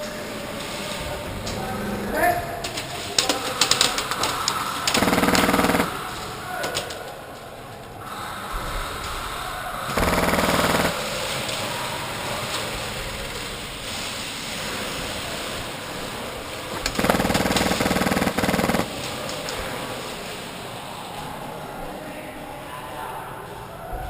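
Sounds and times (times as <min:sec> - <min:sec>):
airsoft gun firing bursts: 0:04.9 - 0:06.1, 0:09.9 - 0:11.3, 0:16.9 - 0:19.0.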